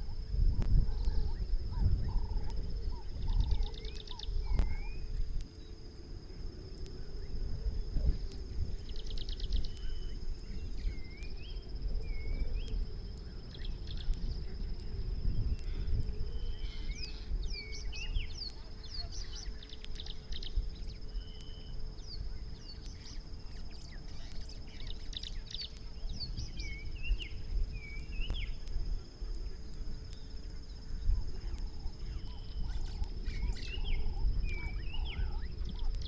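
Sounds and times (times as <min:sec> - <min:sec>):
high-pitched insect drone: 0:00.0 - 0:36.0
small birds calling: 0:00.9 - 0:05.8, 0:15.3 - 0:28.7, 0:29.6 - 0:36.0.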